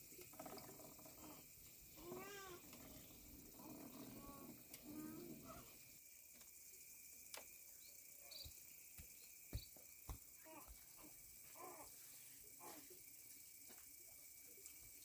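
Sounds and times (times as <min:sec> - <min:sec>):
insects chirring: 0:00.0 - 0:15.0
small child vocalizing: 0:10.4 - 0:11.9.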